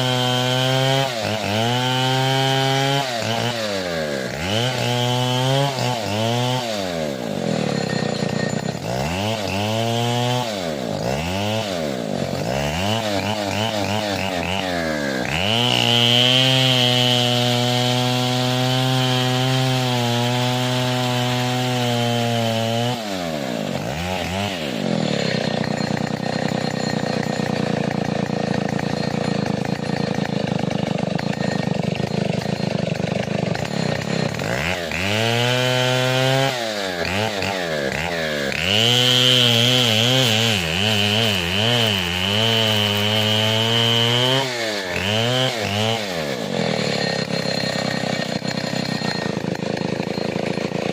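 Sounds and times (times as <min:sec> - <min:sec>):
two-stroke chainsaw revving: 0:00.0 - 0:50.9.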